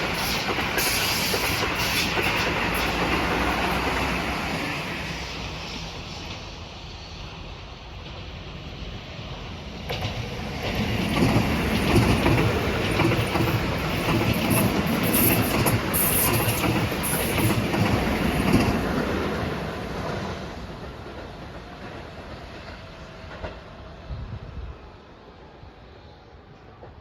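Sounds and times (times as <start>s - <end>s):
electric train on rails: 0.0s - 27.0s
wheels clicking over rail joints: 9.8s - 23.7s.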